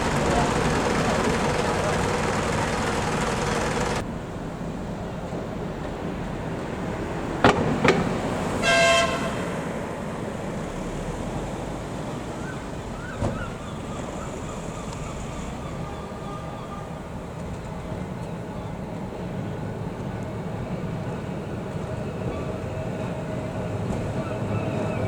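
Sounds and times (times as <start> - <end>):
tram horn toot: 0.0 - 4.0, 8.6 - 9.7
street background: 0.0 - 25.0.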